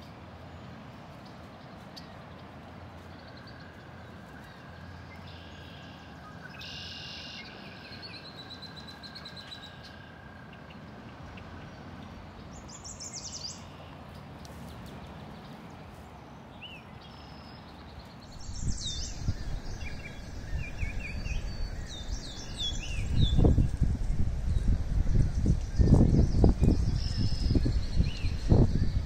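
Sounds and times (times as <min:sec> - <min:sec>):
songbirds chirping: 0:00.0 - 0:29.0
wind buffeting microphone: 0:18.3 - 0:29.0.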